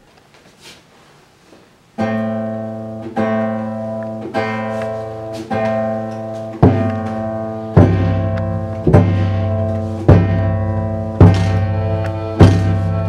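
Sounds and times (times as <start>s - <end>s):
acoustic chords strummed: 1.9s - 13.0s
deep bass notes: 6.5s - 13.0s.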